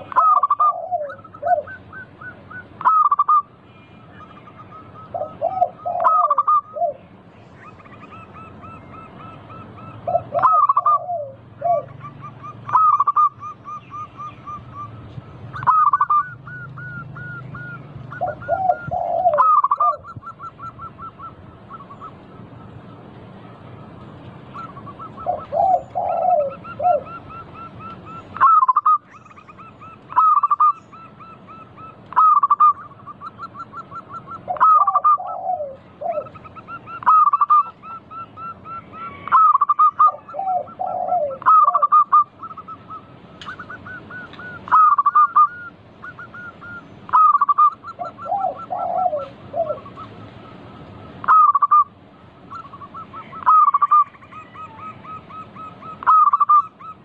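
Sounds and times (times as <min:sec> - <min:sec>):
doves trilling: 0:00.0 - 0:57.0.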